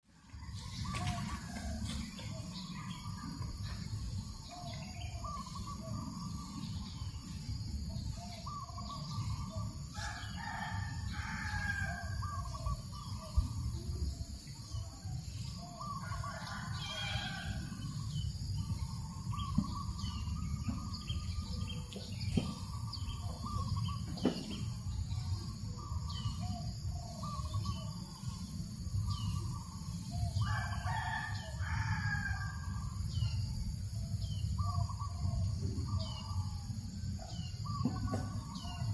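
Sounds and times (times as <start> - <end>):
small birds chirping: 0.4 - 31.2, 33.2 - 38.9
rooster crowing: 9.9 - 12.5, 15.8 - 17.8, 30.4 - 32.8.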